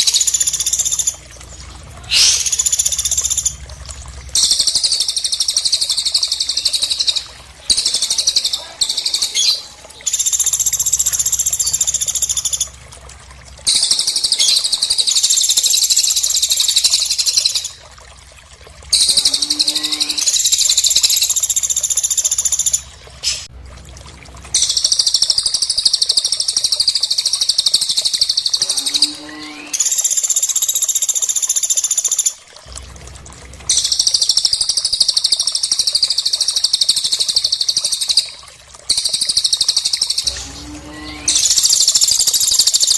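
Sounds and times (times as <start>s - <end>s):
high-pitched bird trilling: 2.1s - 3.4s, 13.7s - 15.5s.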